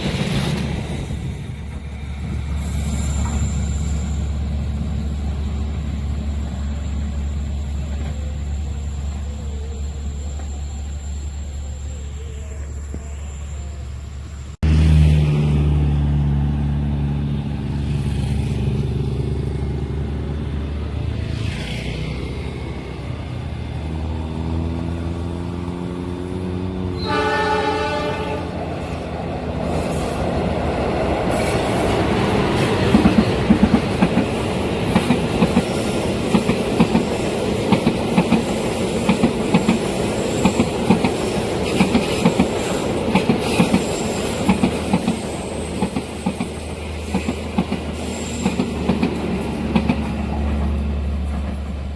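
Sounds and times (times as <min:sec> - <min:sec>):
diesel locomotive engine: 0:00.0 - 0:51.9
train horn: 0:26.8 - 0:28.9
wheels clacking over rail joints: 0:28.9 - 0:51.9.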